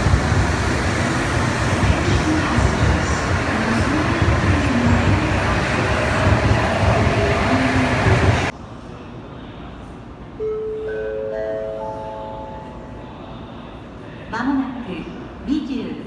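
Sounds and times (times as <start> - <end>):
train rumbling past: 0.0 - 8.6.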